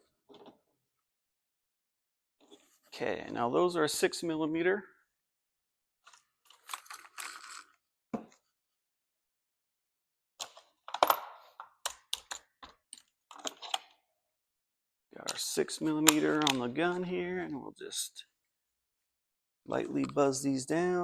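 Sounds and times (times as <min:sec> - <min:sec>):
tool parts rustling: 0:06.1 - 0:07.8.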